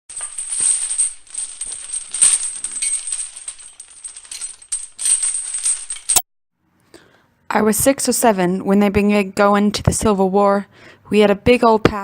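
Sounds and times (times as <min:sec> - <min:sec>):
small metal objects jingling: 0:00.1 - 0:06.2.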